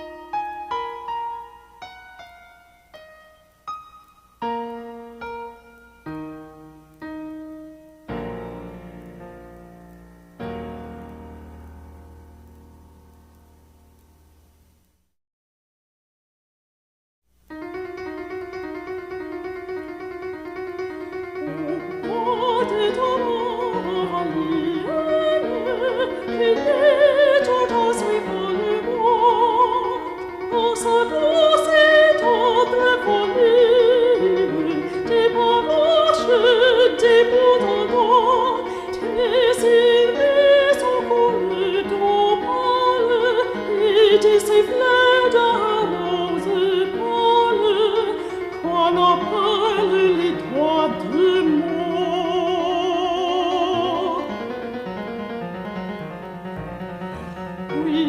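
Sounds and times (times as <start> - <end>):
slow solo piano melody: 17.5 - 26.5, 53.7 - 58.0
operatic singing: 21.4 - 54.4, 56.6 - 58.0
instrumental accompaniment: 53.8 - 58.0.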